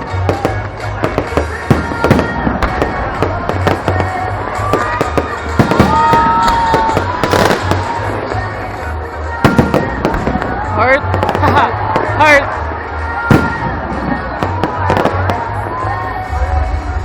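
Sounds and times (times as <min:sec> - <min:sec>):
fireworks bangs and crackling: 0:00.0 - 0:17.0
music with pulsing bass: 0:00.0 - 0:17.0.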